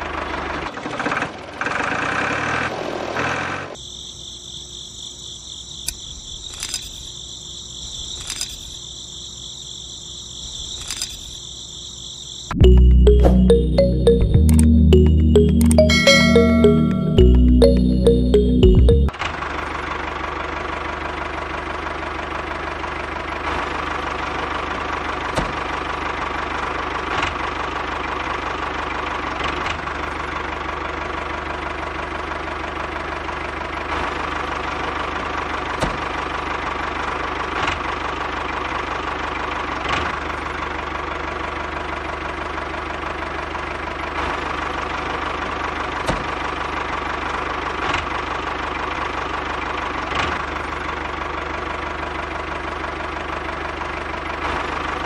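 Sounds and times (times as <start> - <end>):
clicks: 12.6 - 19.1.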